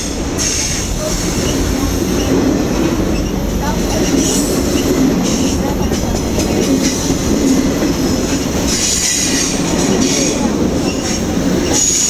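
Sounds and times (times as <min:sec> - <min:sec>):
train wheels rumbling on rail: 0:00.0 - 0:12.0
high wheel squeal: 0:08.3 - 0:12.0.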